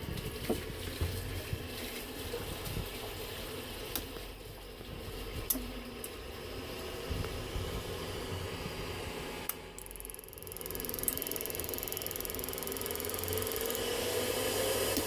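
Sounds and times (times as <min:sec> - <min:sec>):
boiler rushing with low hum: 0:00.0 - 0:15.0
sharp boiler clicks: 0:09.4 - 0:14.1.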